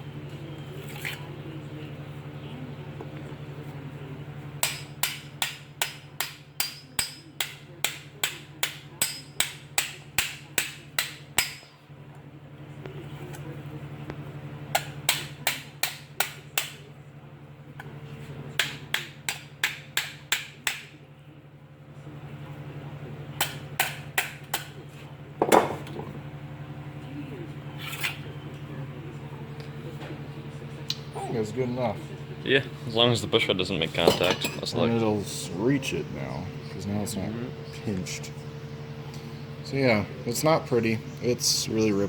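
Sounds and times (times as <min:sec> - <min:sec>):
hammer tapping sheet metal: 0:04.6 - 0:11.7.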